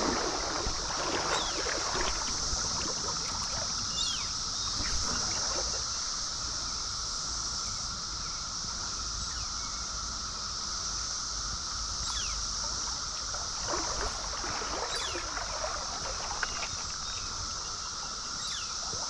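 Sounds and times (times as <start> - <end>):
stream rushing: 0.0 - 3.9, 13.3 - 17.6
water sloshing and splashing: 0.0 - 6.3, 12.6 - 19.0
cicadas droning: 0.0 - 19.0.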